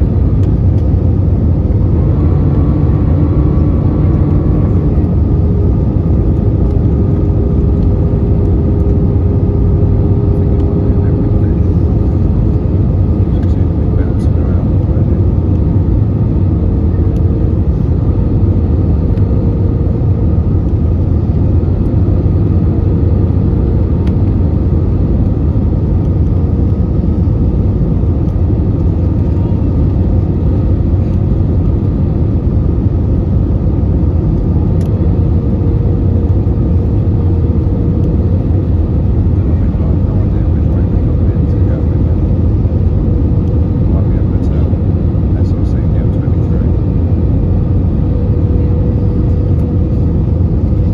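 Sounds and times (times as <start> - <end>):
airliner cabin engine rumble: 0.0 - 50.9.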